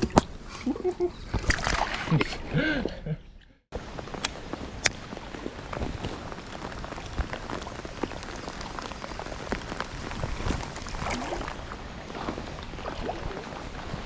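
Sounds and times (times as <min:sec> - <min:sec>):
water splashing: 0:00.9 - 0:02.5, 0:03.9 - 0:14.0
water dripping: 0:04.0 - 0:14.0.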